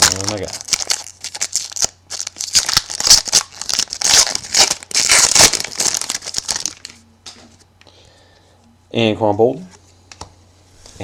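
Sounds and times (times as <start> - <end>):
plastic wrapper tearing and crinkling: 0.0 - 7.0.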